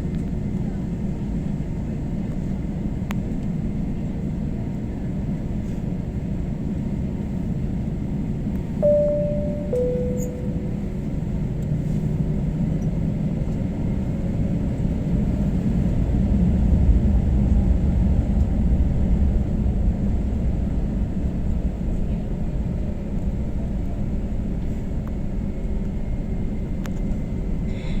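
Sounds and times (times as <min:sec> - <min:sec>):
two-tone cabin chime: 0:08.8 - 0:11.2.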